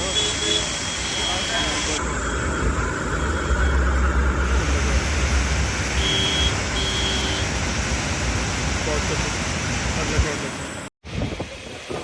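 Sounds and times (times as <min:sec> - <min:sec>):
flooded river rushing: 0:04.2 - 0:12.0.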